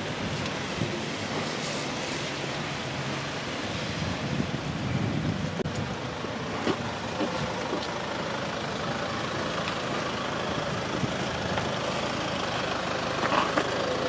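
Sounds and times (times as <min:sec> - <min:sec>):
rain falling: 0:00.0 - 0:14.0
vehicle engine running: 0:05.6 - 0:14.0.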